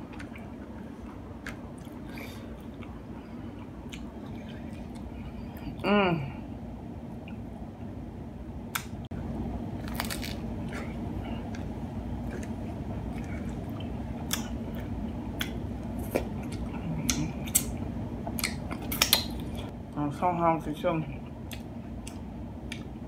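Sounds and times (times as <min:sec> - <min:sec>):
steady low hum: 0:00.0 - 0:23.0
crunchy taco chewing: 0:09.8 - 0:17.7.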